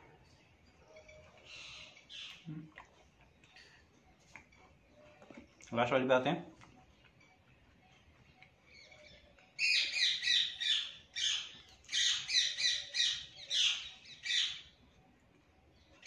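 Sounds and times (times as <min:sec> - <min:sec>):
bird chirping rapidly: 0:09.6 - 0:14.6.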